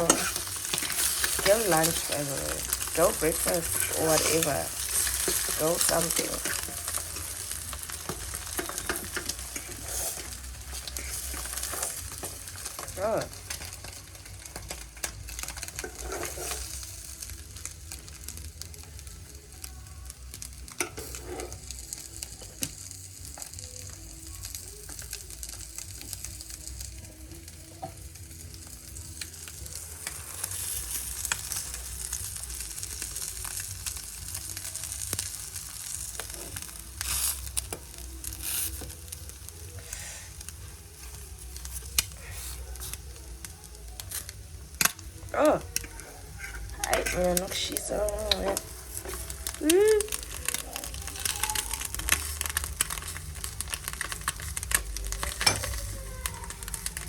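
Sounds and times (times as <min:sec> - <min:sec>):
food sizzling in a pan: 0:00.0 - 0:57.0.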